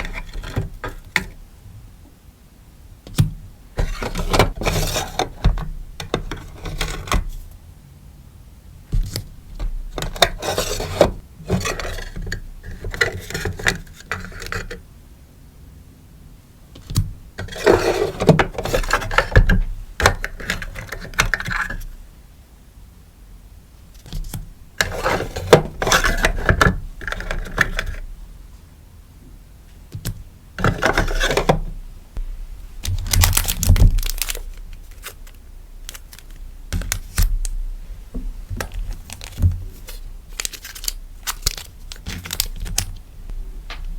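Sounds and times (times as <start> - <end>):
plastic and paper rustling: 17.4 - 19.5, 32.8 - 37.4, 38.5 - 43.0.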